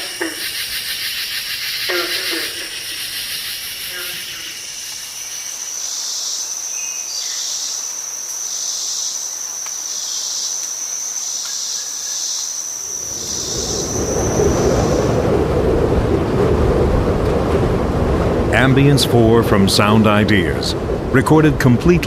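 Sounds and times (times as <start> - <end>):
insects trilling: 0.0 - 16.4
pulsing insect chorus: 0.0 - 22.0
low rumble: 12.8 - 22.0.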